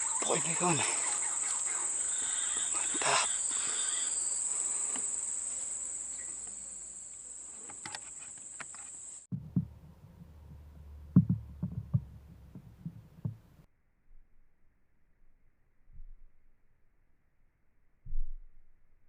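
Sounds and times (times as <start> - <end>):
high-pitched insect drone: 0.0 - 9.3
soft thumps: 9.3 - 13.6
low rumble: 9.3 - 13.7.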